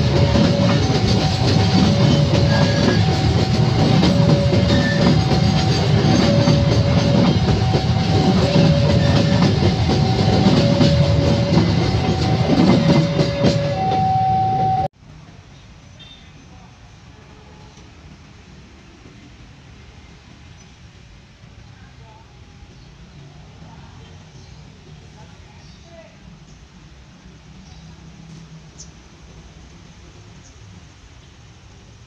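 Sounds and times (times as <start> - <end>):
freight train wheels clattering: 0.0 - 14.9
level-crossing alarm two tones: 0.0 - 14.9.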